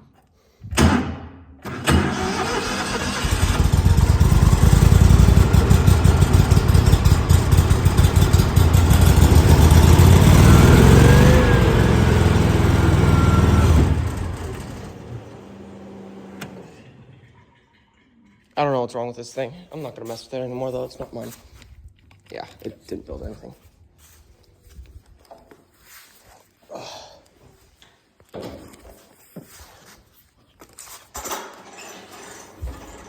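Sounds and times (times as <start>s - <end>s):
small gas engine running: 1.7s - 17.3s
engine sputters: 1.9s - 15.3s.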